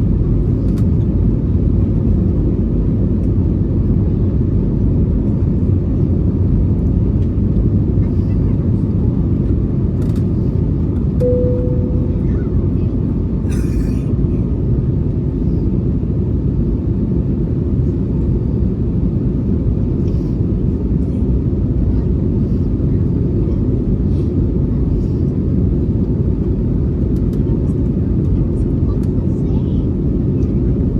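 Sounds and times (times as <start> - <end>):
short high tone: 11.2 - 12.7.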